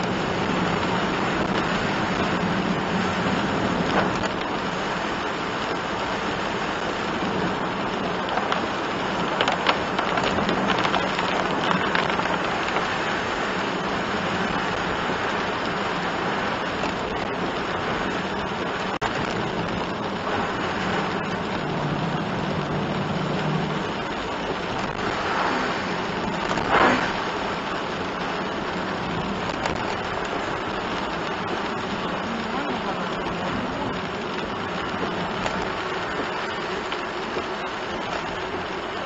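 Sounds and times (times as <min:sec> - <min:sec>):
low engine hum: 0:00.0 - 0:39.0
rain and tyres on wet road: 0:00.0 - 0:39.0
brief louder swish: 0:25.1 - 0:27.3.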